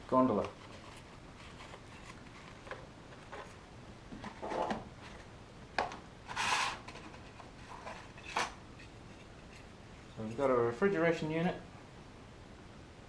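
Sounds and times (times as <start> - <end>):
boxes being handled: 0.3 - 8.6.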